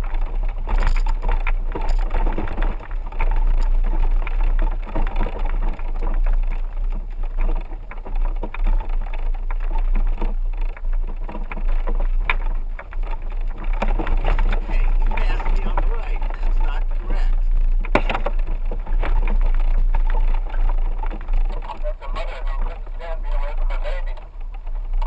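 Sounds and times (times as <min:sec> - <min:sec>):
rattles and knocks: 0:00.0 - 0:25.0
vehicle driving low rumble: 0:00.0 - 0:25.0.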